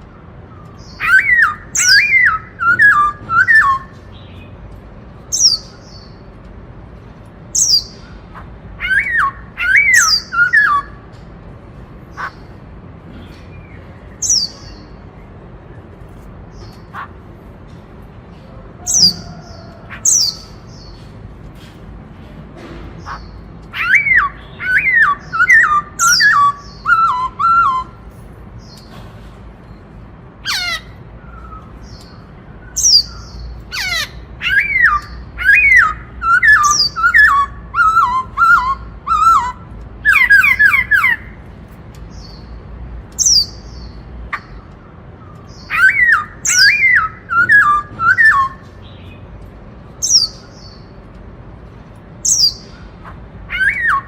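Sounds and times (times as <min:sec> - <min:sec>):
bird singing whistled notes: 0:00.8 - 0:04.5, 0:07.6 - 0:08.0, 0:08.8 - 0:11.0, 0:14.2 - 0:14.9, 0:23.8 - 0:28.0, 0:31.2 - 0:41.2, 0:45.4 - 0:49.2.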